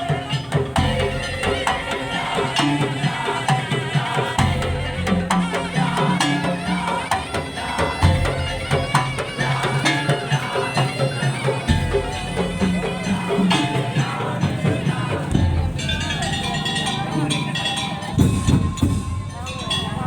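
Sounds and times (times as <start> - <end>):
slit drums and drums beating: 0.0 - 20.0
sustained melody: 0.0 - 20.0.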